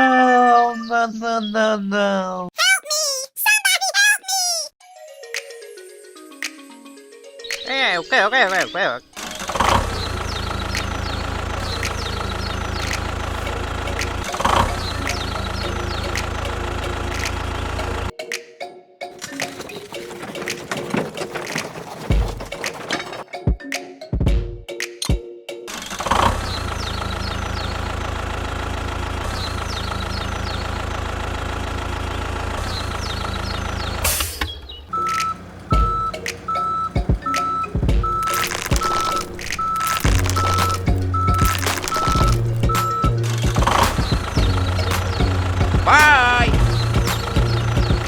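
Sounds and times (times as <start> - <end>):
engine idling: 9.6 - 18.1, 40.3 - 48.0.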